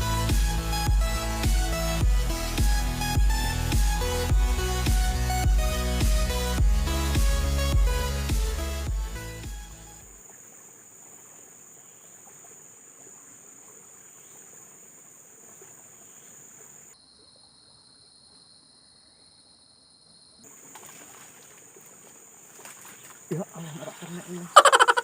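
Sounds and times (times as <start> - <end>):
faint outdoor background noise: 8.9 - 25.0
insects chirring: 10.0 - 25.0.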